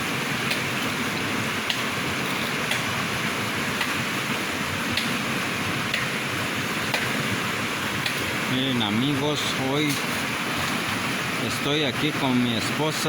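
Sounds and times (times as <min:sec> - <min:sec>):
river water running: 0:00.0 - 0:13.0.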